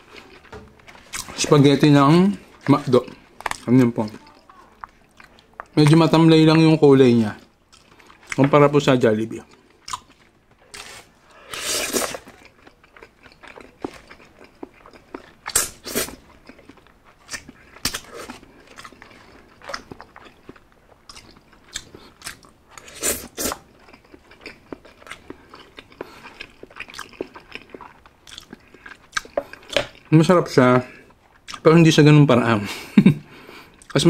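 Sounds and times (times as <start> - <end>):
close chewing with mouth smacks: 2.4 - 6.0, 7.4 - 8.6, 9.5 - 30.1, 31.0 - 31.7.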